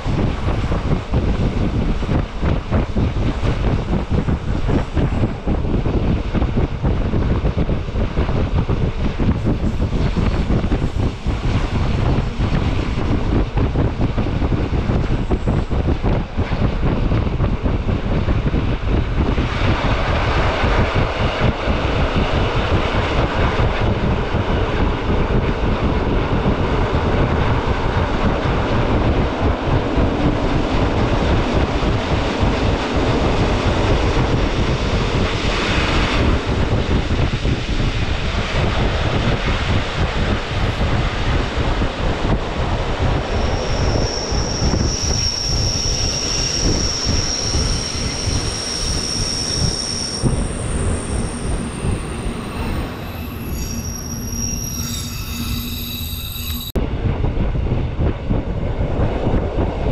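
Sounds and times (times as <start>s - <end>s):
train rolling rumble: 0.0s - 59.9s
high wheel squeal: 43.2s - 56.8s.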